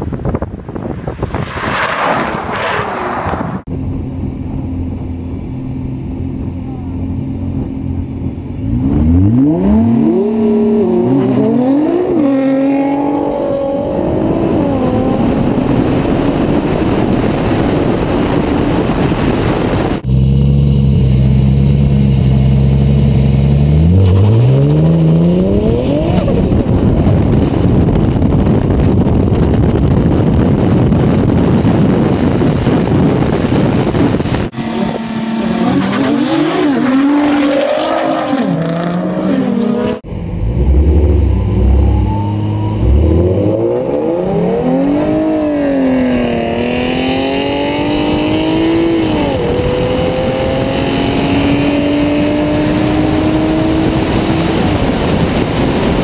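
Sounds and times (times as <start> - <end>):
wind and road noise: 0.0 - 56.0
racing car engines accelerating: 34.5 - 56.0.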